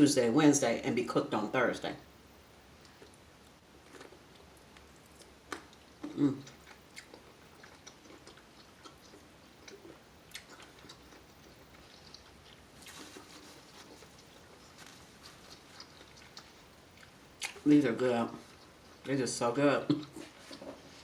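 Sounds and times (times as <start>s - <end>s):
chewing and mouth sounds: 2.8s - 3.2s, 3.8s - 19.1s.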